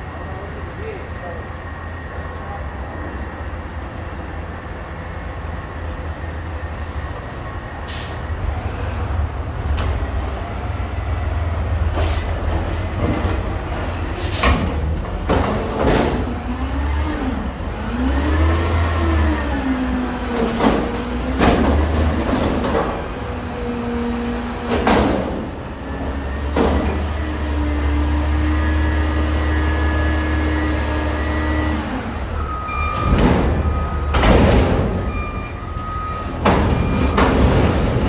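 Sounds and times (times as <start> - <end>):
diesel engine rumbling: 0.0 - 38.0
hydraulics whining: 0.0 - 38.0
metallic bangs and clanks: 32.8 - 38.0.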